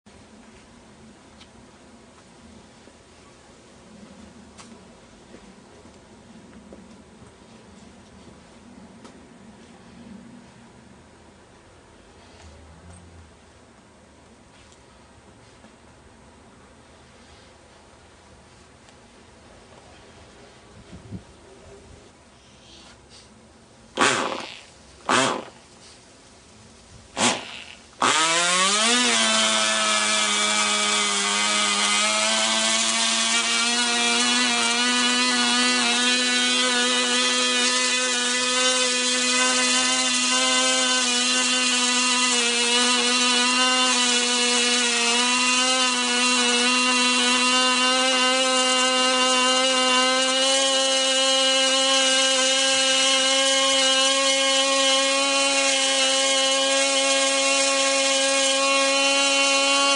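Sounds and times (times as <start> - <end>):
model engine buzzing: 27.2 - 59.9.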